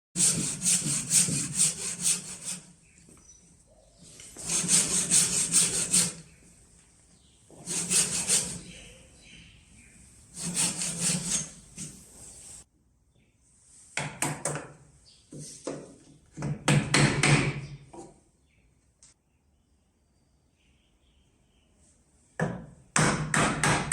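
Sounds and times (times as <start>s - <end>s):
handsaw cutting wood: 0.2s - 2.7s, 4.4s - 6.2s, 7.6s - 8.8s, 10.3s - 12.0s.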